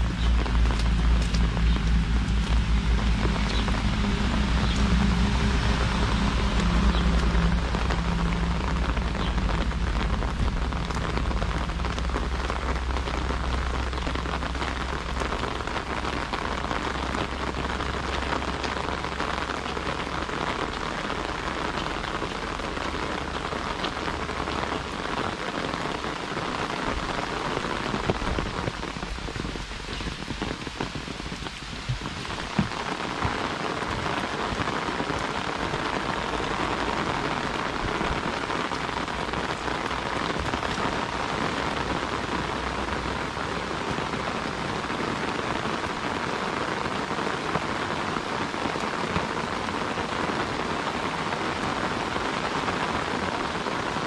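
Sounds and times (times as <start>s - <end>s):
low rumble: 0.0s - 20.9s
heavy rain on umbrella: 0.0s - 54.0s.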